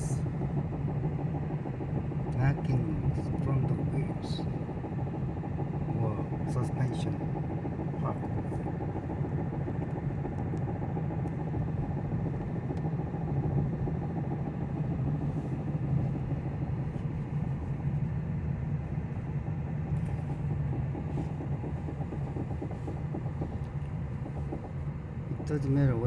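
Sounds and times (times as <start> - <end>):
car driving rumble: 0.0 - 26.0
faint knocking from wheel: 19.8 - 26.0.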